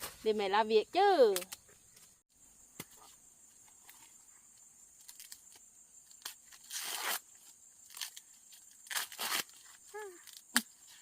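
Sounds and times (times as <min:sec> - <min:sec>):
dry corn leaves crackling and tearing: 0:05.0 - 0:05.6, 0:07.8 - 0:10.7.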